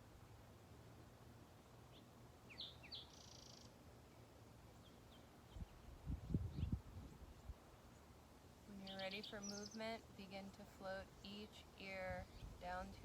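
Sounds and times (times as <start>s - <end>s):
birds chirping: 1.9s - 6.8s, 8.7s - 13.0s.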